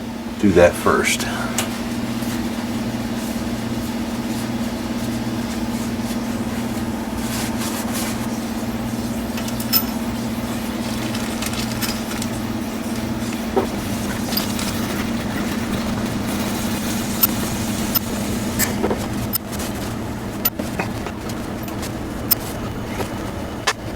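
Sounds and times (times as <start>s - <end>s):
low mechanical hum: 0.0s - 23.9s.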